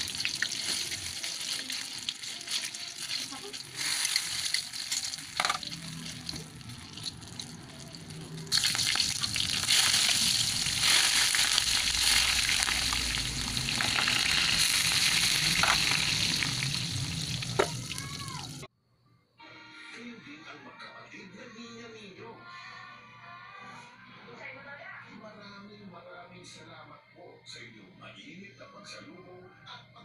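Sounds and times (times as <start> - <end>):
meat sizzling in a wok: 0.0 - 18.6.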